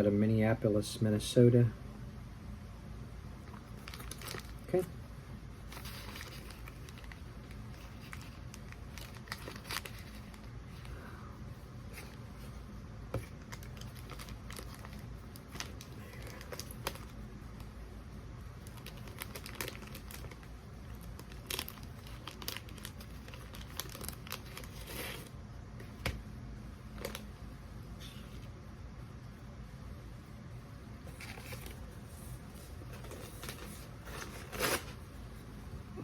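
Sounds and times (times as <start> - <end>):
plastic wrapper crinkling: 3.4 - 4.9, 5.6 - 10.9, 13.2 - 17.2, 18.6 - 25.3, 26.9 - 27.3.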